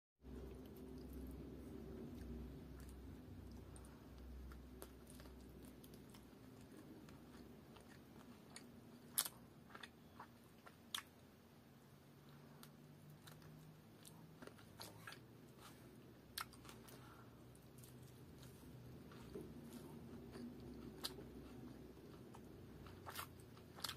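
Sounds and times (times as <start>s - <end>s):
chewing mouth sounds: 12.6s - 23.9s.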